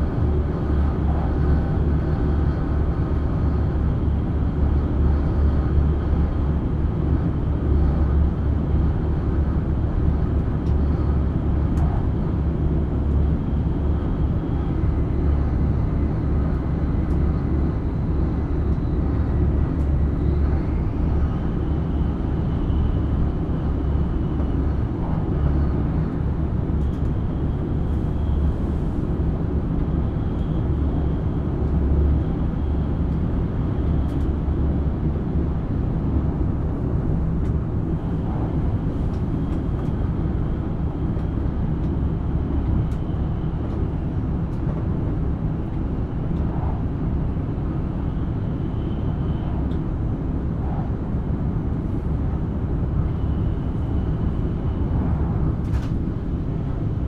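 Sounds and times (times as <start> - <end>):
train cabin low rumble: 0.0 - 57.0.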